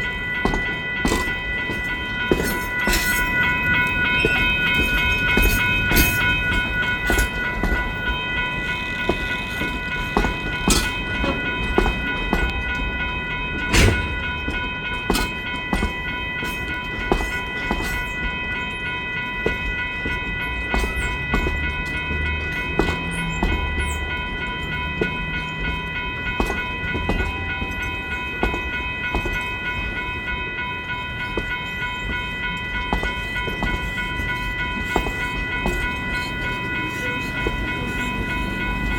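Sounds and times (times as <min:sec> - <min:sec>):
wheels clanking over track: 0:00.0 - 0:18.2, 0:20.1 - 0:27.8.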